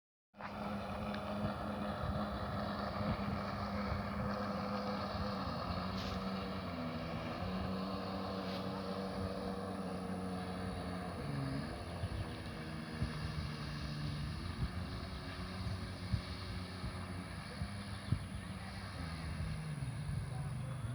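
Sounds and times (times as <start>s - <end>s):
engine running: 0.4s - 20.9s
wind noise on microphone: 0.9s - 6.6s, 11.6s - 20.9s.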